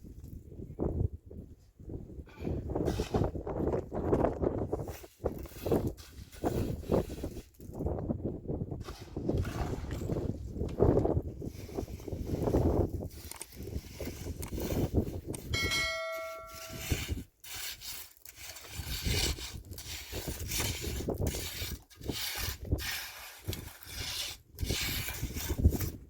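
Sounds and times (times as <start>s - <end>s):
bell-like metallic ring: 15.6s - 17.0s.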